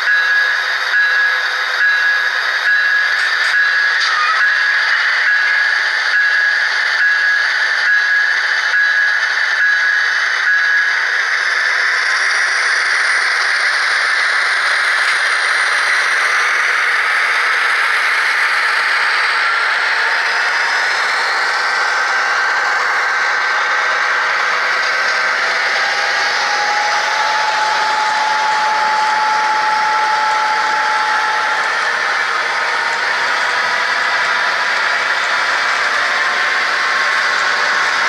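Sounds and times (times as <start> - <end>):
model train whirring on track: 0.0 - 38.0
regular track click: 0.0 - 38.0.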